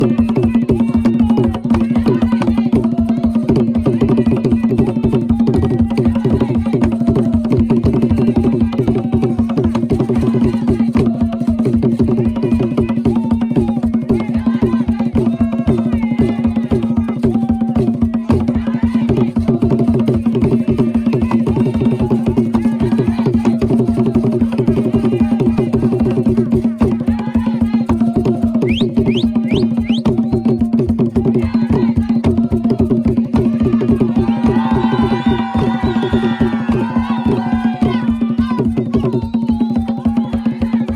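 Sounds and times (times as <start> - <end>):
drums beating fast rhythm: 0.0 - 40.9
voices singing: 0.0 - 40.9.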